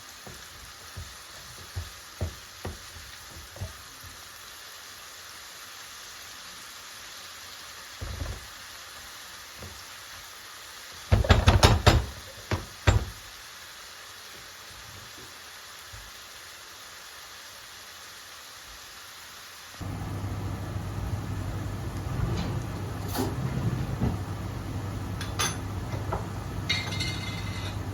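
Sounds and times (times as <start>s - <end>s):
low hiss: 12.2s - 22.2s.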